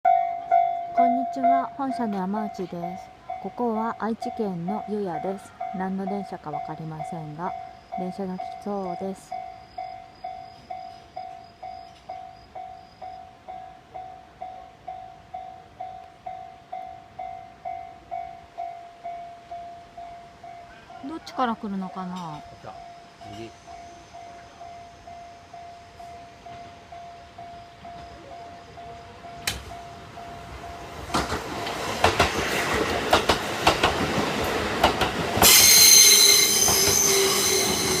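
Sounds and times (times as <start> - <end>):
level crossing bell ringing: 0.1 - 31.0
electric train passing: 0.1 - 38.0
wheels clacking over rail joints: 26.5 - 38.0
high-pitched metallic squeal: 35.4 - 38.0.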